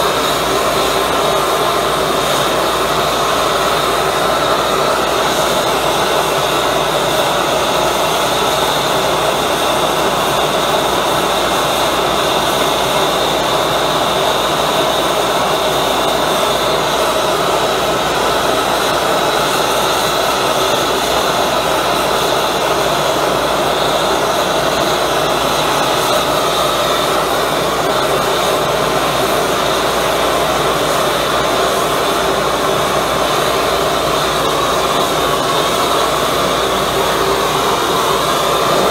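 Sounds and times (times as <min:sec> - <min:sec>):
gas burner rushing: 0:00.0 - 0:38.9.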